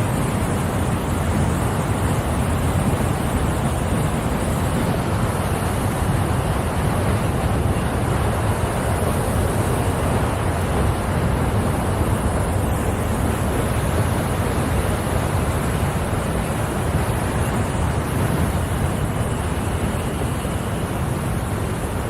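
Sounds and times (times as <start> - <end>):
water pouring down a waterfall: 0.0 - 22.0.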